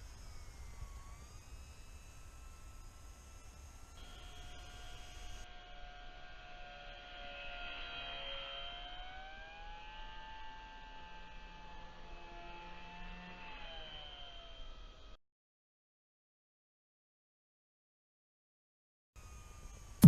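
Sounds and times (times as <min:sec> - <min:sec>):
electric motor and propeller whining: 0:00.0 - 0:15.2, 0:19.2 - 0:20.0.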